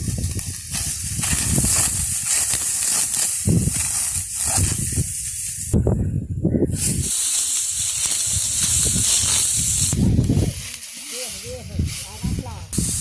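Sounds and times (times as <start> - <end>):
sickle cutting dry wheat: 0.0 - 5.7, 6.8 - 13.0
steady high hiss: 6.8 - 13.0.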